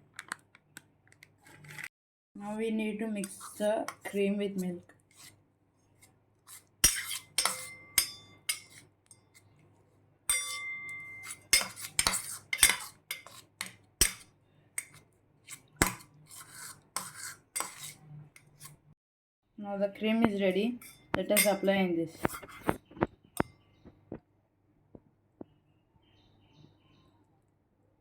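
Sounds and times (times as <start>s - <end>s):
spoon stirring and scraping in bowl: 1.4s - 1.9s, 3.1s - 9.6s, 10.3s - 18.9s, 20.1s - 23.6s
spoon clinking against bowl: 6.8s - 9.4s, 10.3s - 15.0s, 20.8s - 22.7s.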